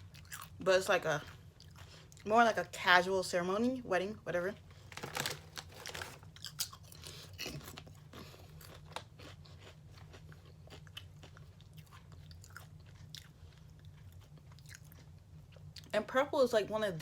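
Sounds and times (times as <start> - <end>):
chewing potato chips: 0.0 - 2.3, 4.7 - 16.0.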